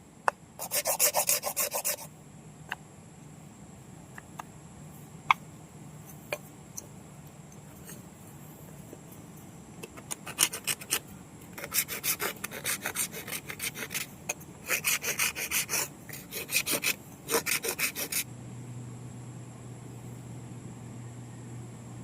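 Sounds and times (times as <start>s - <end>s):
coconut shell being filed: 0.6s - 2.1s, 10.0s - 11.0s, 11.6s - 18.3s.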